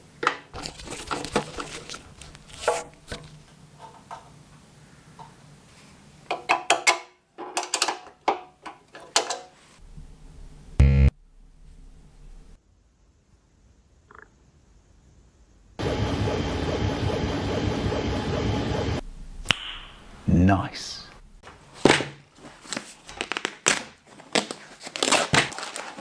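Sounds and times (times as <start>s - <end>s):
hard parts clicking and clinking: 6.3s - 9.5s
loud mechanical buzz: 10.8s - 11.2s, 15.8s - 19.3s.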